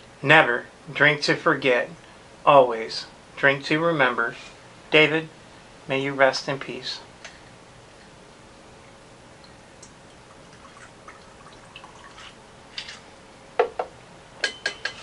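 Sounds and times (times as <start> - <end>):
faint liquid and clicking: 8.8 - 13.0.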